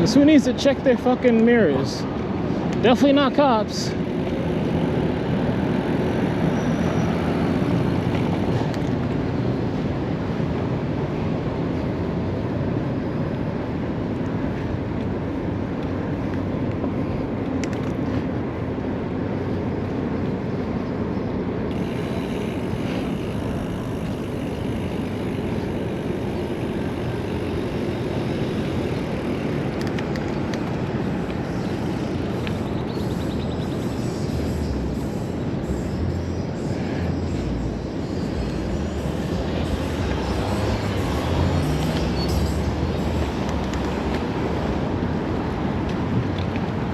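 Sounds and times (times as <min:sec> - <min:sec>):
bike tyres rolling: 0:00.0 - 0:11.1, 0:21.6 - 0:46.9
city traffic: 0:00.0 - 0:46.9.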